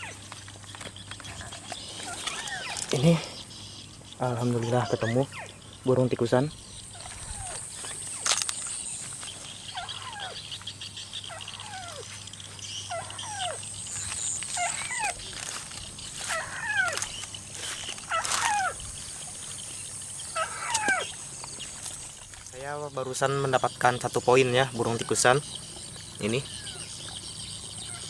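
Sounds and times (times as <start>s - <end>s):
bird calling descending notes: 1.5s - 8.3s, 9.3s - 21.7s.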